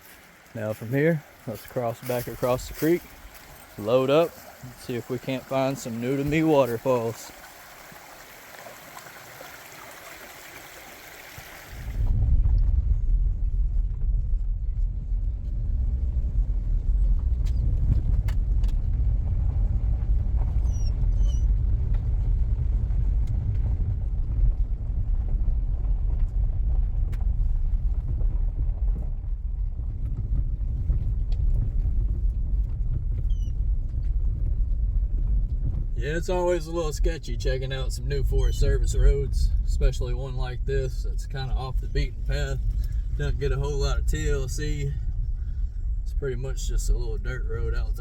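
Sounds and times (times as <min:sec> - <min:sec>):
car rumbling on dirt road: 0:00.0 - 0:07.5, 0:11.8 - 0:48.0
creek water flowing: 0:00.0 - 0:12.0.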